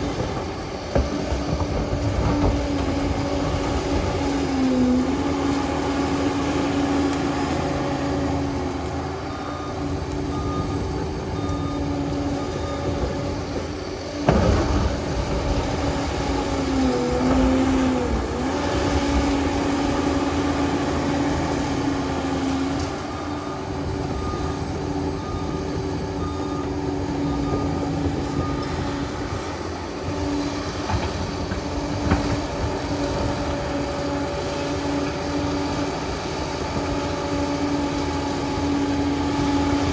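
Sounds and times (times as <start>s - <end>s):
bulldozer diesel engine running: 0.0s - 39.9s
reversing alarm beeping: 5.9s - 13.7s, 21.4s - 29.6s.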